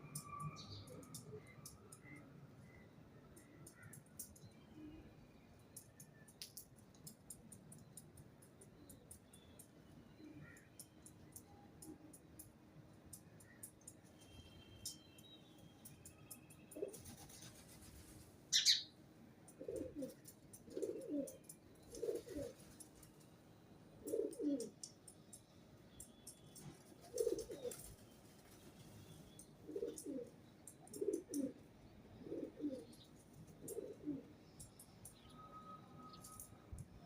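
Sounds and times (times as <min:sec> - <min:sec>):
sharp high bird chirp: 0:18.6 - 0:18.9
pigeon cooing: 0:19.6 - 0:21.4, 0:22.0 - 0:22.6, 0:24.0 - 0:24.7, 0:27.1 - 0:27.8, 0:29.7 - 0:30.3, 0:30.9 - 0:31.6, 0:32.2 - 0:32.9, 0:33.6 - 0:34.3.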